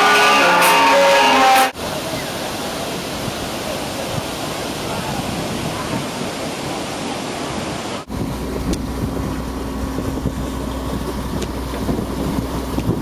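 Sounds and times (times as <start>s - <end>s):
water rushing: 0.0s - 13.0s
wind buffeting microphone: 7.4s - 13.0s
boat engine running: 8.1s - 13.0s.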